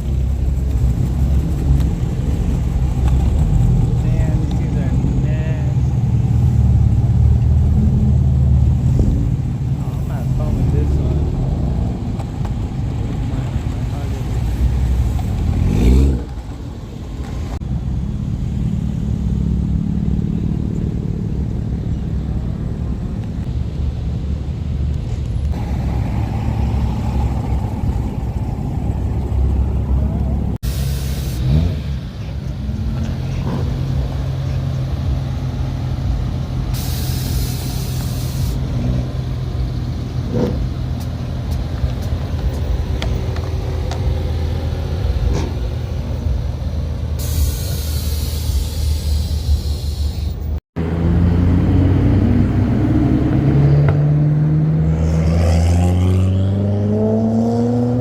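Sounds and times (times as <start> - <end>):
car engine idling and revving: 0.0 - 58.0
hiss: 30.6 - 32.0, 36.7 - 38.6, 47.1 - 50.4.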